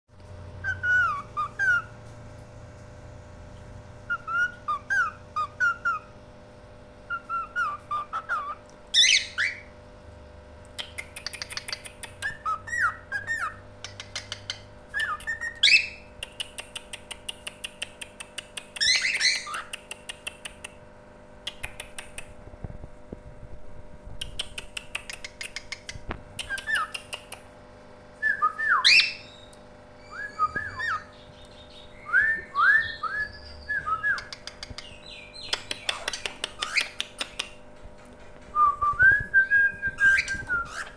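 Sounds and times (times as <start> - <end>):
songbird singing: 0.6 - 2.0, 7.1 - 9.7, 28.2 - 37.4.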